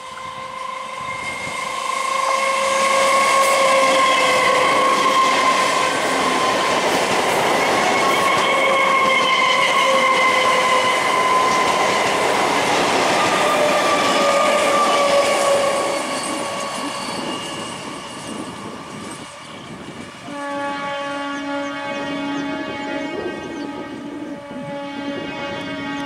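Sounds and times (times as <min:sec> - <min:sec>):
train horn blast: 0:00.0 - 0:18.6, 0:20.2 - 0:26.0
train passing on rails: 0:00.0 - 0:26.0.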